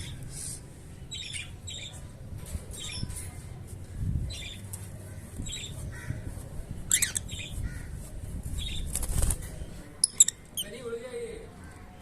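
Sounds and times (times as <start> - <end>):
lovebirds squawking and chirping: 1.1 - 2.0, 4.2 - 11.0.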